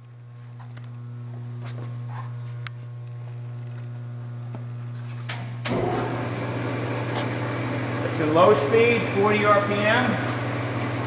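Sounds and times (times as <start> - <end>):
electric motor humming: 5.7 - 11.0.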